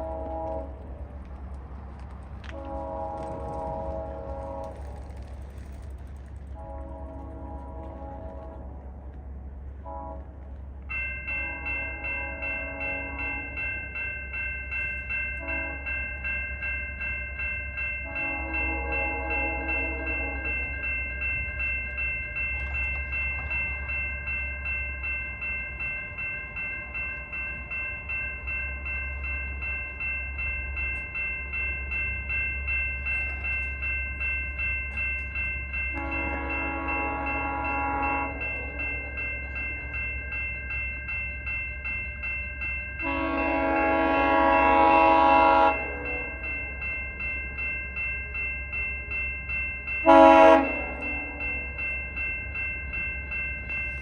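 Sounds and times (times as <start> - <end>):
train horn blasts: 0.0 - 1.0, 2.4 - 5.0, 6.5 - 10.6, 11.3 - 13.7, 15.4 - 16.1, 18.0 - 20.8, 35.9 - 39.1, 43.0 - 46.4, 50.0 - 51.8
level crossing bells ringing: 10.8 - 54.0.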